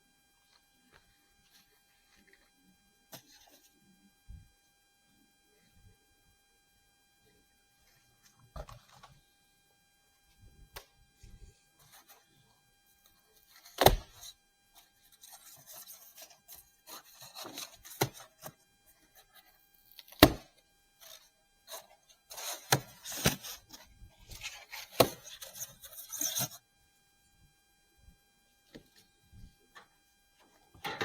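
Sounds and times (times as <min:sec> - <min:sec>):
packaging rustling and scraping: 0:07.9 - 0:09.2, 0:11.2 - 0:12.3, 0:12.9 - 0:20.3, 0:21.0 - 0:26.6.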